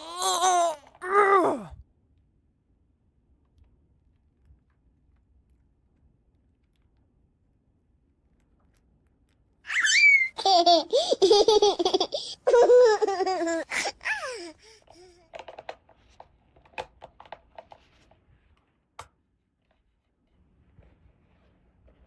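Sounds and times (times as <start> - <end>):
childlike giggling: 9.7 - 14.8
plastic toy pieces clicking: 14.9 - 15.8.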